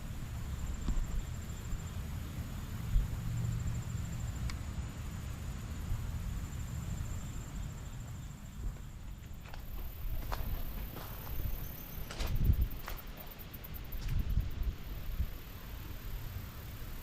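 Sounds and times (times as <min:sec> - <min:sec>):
wind buffeting microphone: 0:08.7 - 0:16.2
insect trilling: 0:09.6 - 0:17.0.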